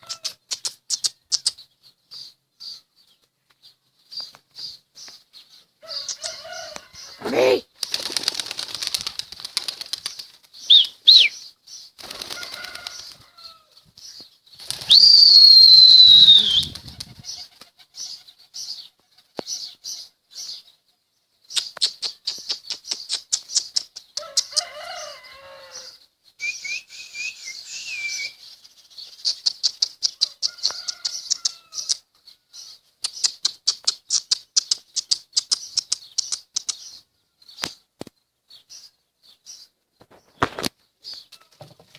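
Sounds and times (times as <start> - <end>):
bird chirps: 0.0 - 8.2, 10.0 - 41.5
bird wings flapping: 7.7 - 11.2, 12.0 - 13.4, 14.6 - 15.3, 16.2 - 17.9
loud falling whistle: 14.9 - 16.7.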